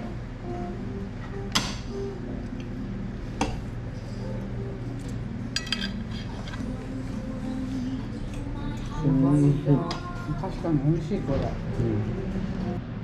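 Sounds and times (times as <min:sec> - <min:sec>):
cutlery clinking against plates: 0:05.6 - 0:06.6.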